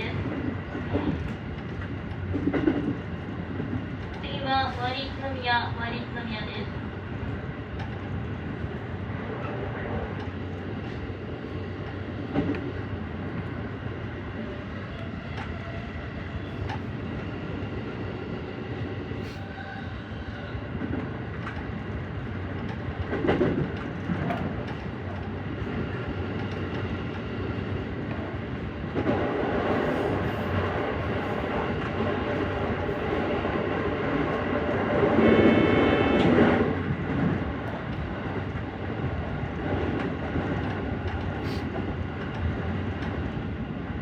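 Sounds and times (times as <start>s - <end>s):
train wheels running on rails: 0.0s - 44.0s
train knocks: 0.3s - 4.4s, 20.7s - 38.2s.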